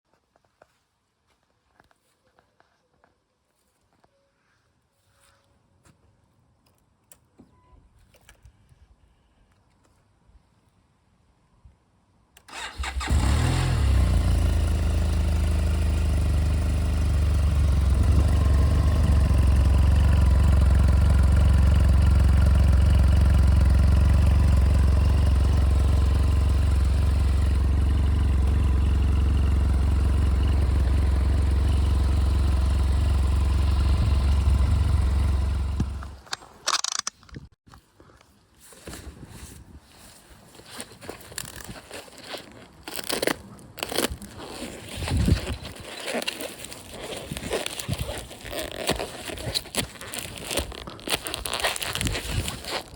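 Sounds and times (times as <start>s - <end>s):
motorcycle engine idling: 12.6s - 36.2s.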